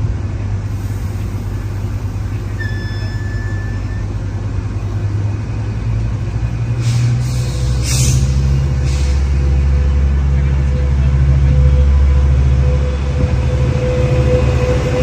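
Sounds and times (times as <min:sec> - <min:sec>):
diesel locomotive rumbling: 0:00.0 - 0:15.0
short high beep: 0:02.6 - 0:04.1
short hisses: 0:04.8 - 0:09.4.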